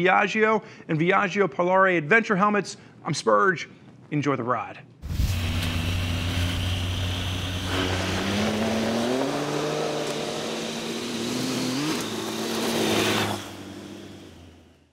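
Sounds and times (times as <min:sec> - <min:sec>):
motorcycle engine accelerating: 0:05.0 - 0:14.9.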